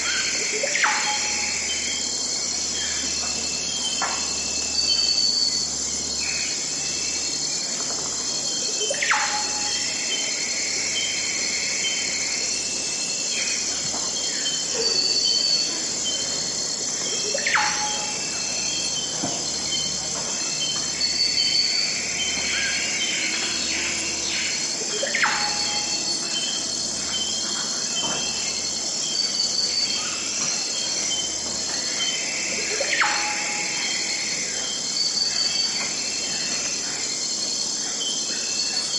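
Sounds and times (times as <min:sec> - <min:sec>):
insects chirring: 0:00.0 - 0:38.9
birds chirping: 0:13.0 - 0:38.9.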